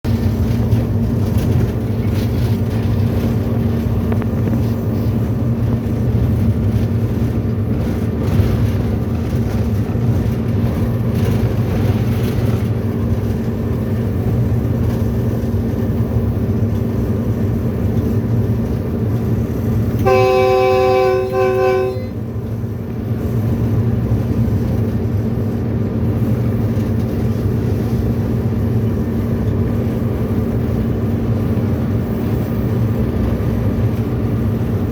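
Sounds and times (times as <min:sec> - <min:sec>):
locomotive running at speed: 0:00.0 - 0:34.9
locomotive horn blast: 0:20.0 - 0:22.4.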